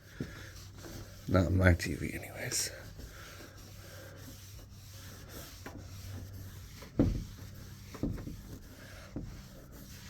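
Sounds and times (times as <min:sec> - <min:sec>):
cloth rubbing on screen: 0:00.1 - 0:10.0
dull thumps: 0:06.7 - 0:09.5.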